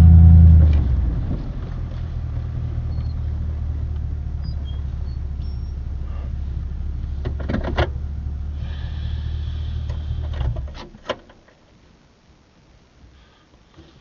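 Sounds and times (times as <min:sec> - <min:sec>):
pickup truck engine idling: 0:02.4 - 0:10.4.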